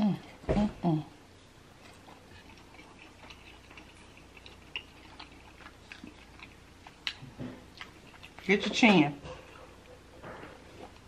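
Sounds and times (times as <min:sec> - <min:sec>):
soft wet chewing clicks: 0:01.7 - 0:10.0.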